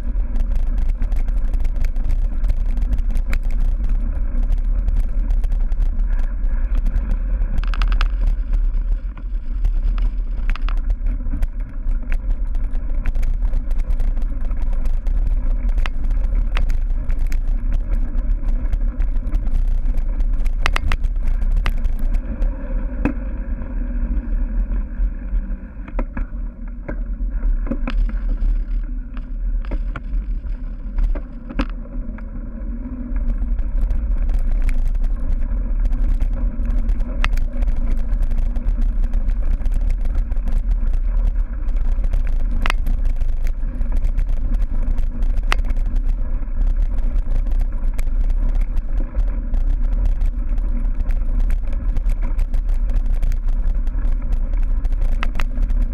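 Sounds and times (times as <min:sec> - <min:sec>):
bike clicks and knocks: 0:00.0 - 0:23.2
wind rumble on microphone: 0:00.0 - 0:55.9.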